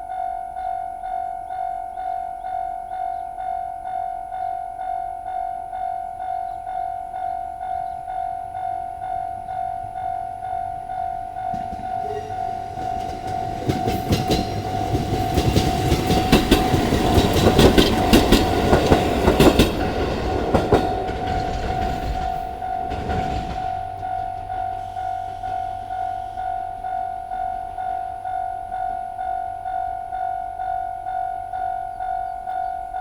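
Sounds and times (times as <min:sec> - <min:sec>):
level crossing warning bell ringing: 0:00.0 - 0:33.0
train wheels clicking over rail joints: 0:09.1 - 0:27.8.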